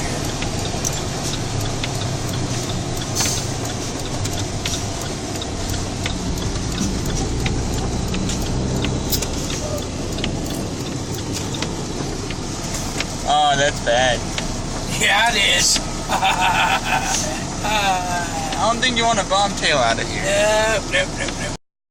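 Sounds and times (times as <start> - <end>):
road noise: 0.0 - 21.6
truck engine hum: 0.0 - 21.6
sharp clicks: 0.2 - 13.2.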